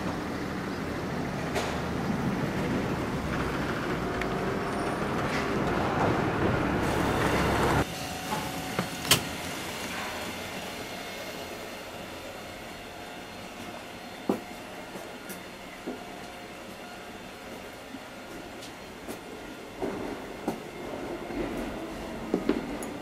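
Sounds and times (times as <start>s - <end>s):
rumble of passing vehicles: 0.0s - 8.2s.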